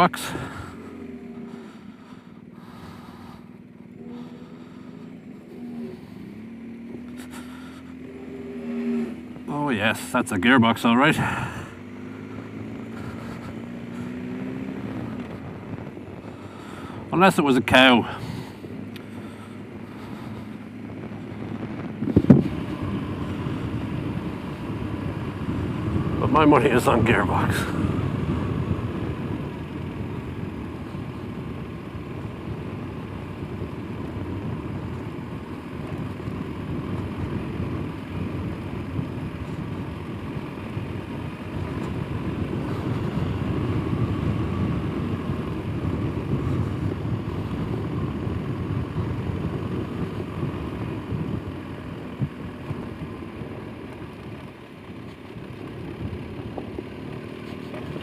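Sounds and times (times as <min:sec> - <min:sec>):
motorcycle engine rumbling: 0:00.0 - 0:58.0.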